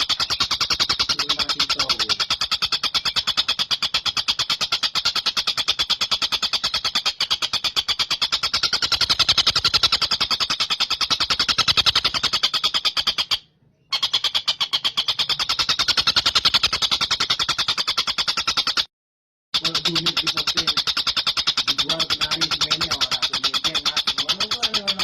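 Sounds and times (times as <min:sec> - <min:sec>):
kingfisher rattling trill: 0:00.0 - 0:13.4, 0:19.6 - 0:25.0.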